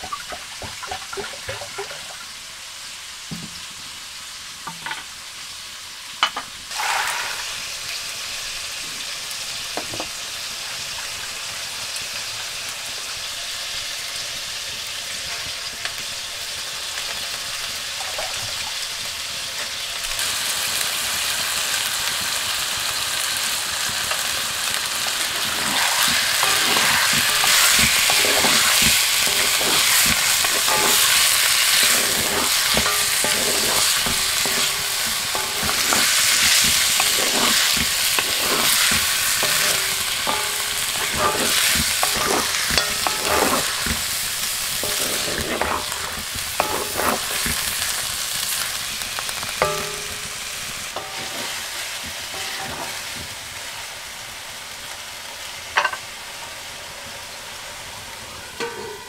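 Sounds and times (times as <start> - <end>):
meat and beans sizzling in a wok: 0.0 - 59.0
wooden spatula scraping a wok: 6.7 - 7.7, 25.2 - 53.3.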